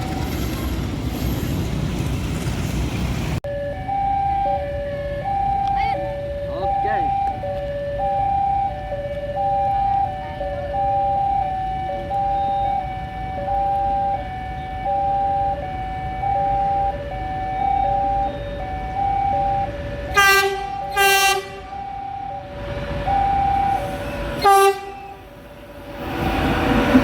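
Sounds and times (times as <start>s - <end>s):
level crossing alarm: 3.4s - 25.4s
locomotive horn: 20.0s - 22.1s, 23.5s - 25.4s.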